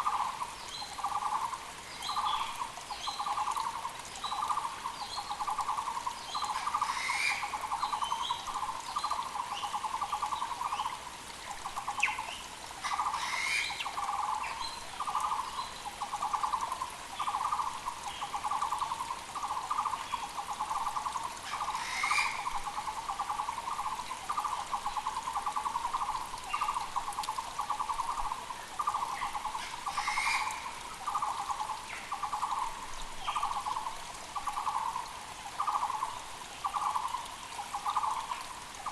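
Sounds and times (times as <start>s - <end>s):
small birds chirping: 0.0s - 38.9s
barbet pulsed call: 28.8s - 32.7s.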